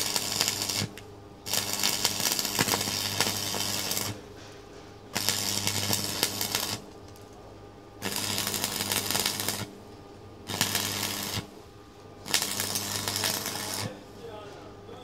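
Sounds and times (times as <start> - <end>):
welding arc crackling: 0.0 - 4.3, 5.1 - 7.4, 8.0 - 9.8, 10.4 - 11.6, 12.2 - 14.1
electrical hum: 0.0 - 15.0.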